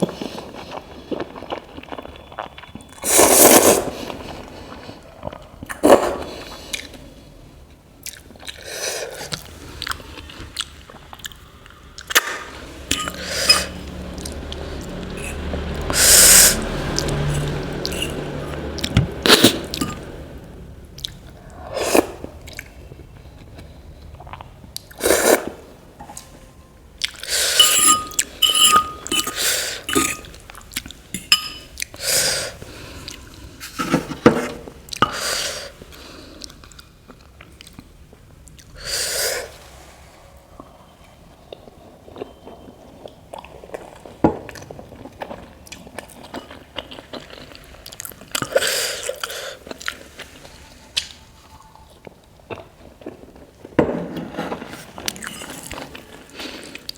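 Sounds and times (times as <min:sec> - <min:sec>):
slurping and chewing noodles: 0:00.0 - 0:07.2, 0:08.0 - 0:26.3, 0:27.0 - 0:33.9, 0:41.4 - 0:50.8, 0:54.5 - 0:56.9.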